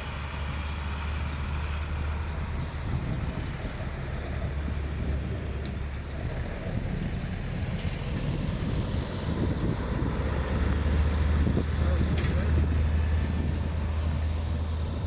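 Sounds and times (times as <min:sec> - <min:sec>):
blizzard wind buffeting microphone: 0:00.0 - 0:15.0
hiss of wind-driven snow: 0:02.0 - 0:11.7.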